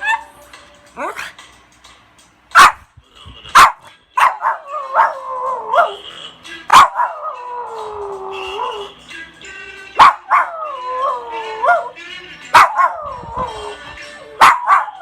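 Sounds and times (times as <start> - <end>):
dog yipping: 0.0 - 0.4, 2.6 - 2.8, 3.6 - 6.0, 6.7 - 7.4, 10.0 - 10.6, 12.6 - 13.2, 14.4 - 15.0
dog howling: 4.4 - 6.0, 6.8 - 8.9, 10.0 - 12.0, 12.6 - 13.8.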